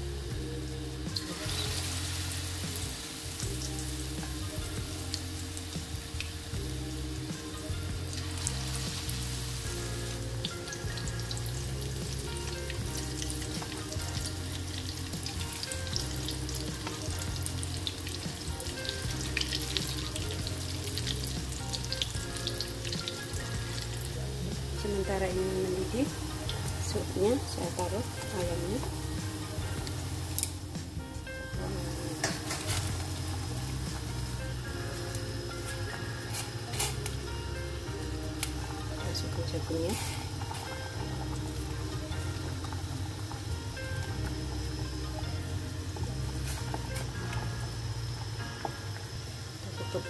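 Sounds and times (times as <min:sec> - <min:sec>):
batter deep-frying in oil: 0:00.0 - 0:50.0
oil crackles and pops: 0:07.6 - 0:24.2, 0:29.6 - 0:30.7, 0:32.2 - 0:37.3, 0:38.3 - 0:38.8, 0:39.7 - 0:50.0.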